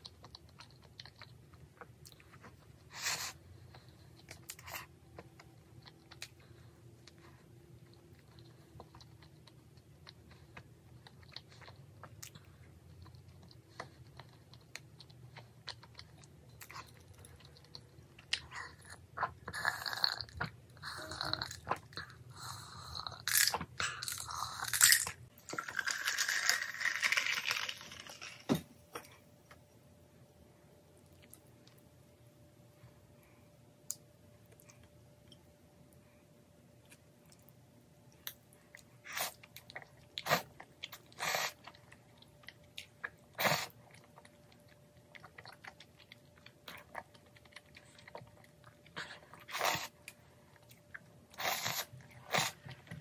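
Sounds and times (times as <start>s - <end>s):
chewing with wet mouth noises: 0.0s - 24.6s, 36.8s - 53.0s.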